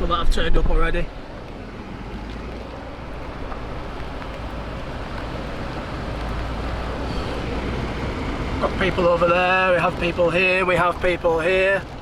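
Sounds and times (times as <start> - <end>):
car engine idling: 0.1 - 12.0
heavy rain on car roof: 2.6 - 6.9, 8.0 - 12.0.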